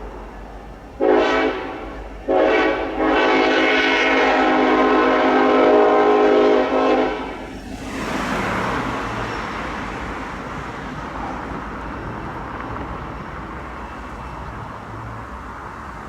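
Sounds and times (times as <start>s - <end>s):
locomotive air horn blasts: 1.0s - 7.5s.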